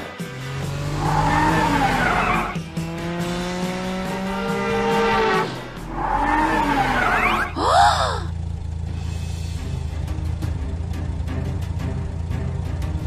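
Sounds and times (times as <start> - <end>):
background music: 0.0 - 8.3, 8.9 - 13.0
cartoon car engine running: 0.1 - 13.0
cartoon tyres squealing: 0.9 - 2.7, 4.9 - 8.3.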